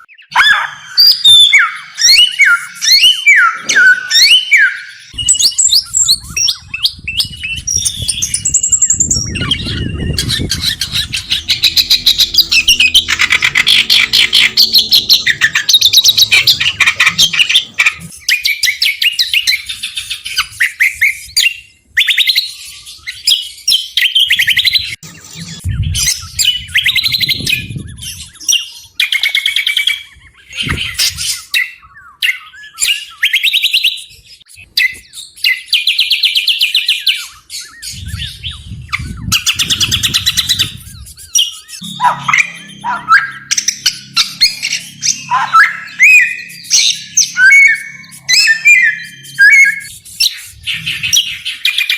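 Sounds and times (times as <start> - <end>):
small songbird singing trills: 0.0 - 51.9
low rumble: 6.9 - 17.0.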